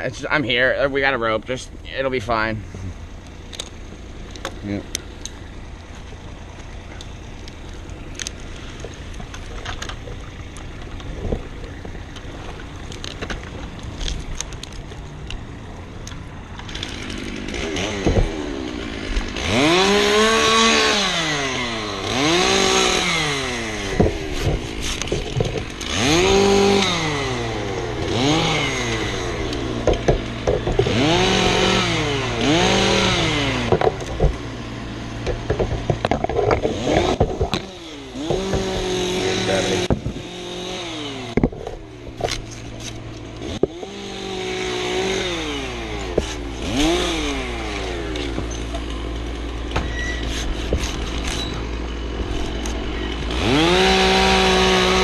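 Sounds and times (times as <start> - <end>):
low engine hum: 0.0 - 55.0
chainsaw revving: 13.9 - 55.0.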